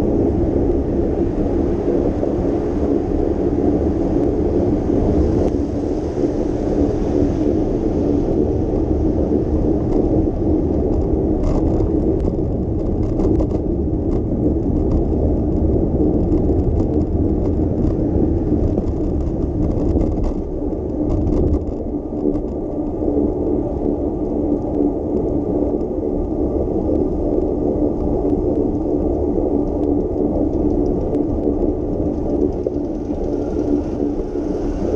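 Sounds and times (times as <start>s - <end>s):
bicycle rumbling on wet pavement: 0.1s - 34.9s
traffic noise: 28.8s - 34.9s
short ticks and rattles: 29.0s - 34.2s.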